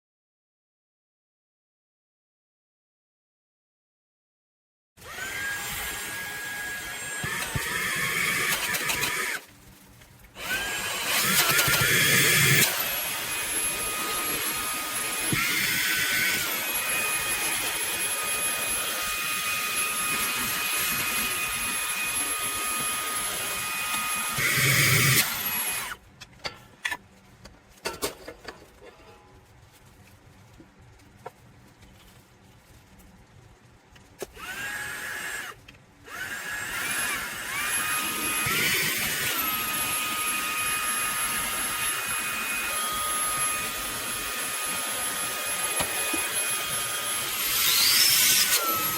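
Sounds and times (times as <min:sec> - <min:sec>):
handheld vacuum motor whining: 0:05.0 - 0:09.5, 0:10.3 - 0:26.0, 0:34.2 - 0:48.9.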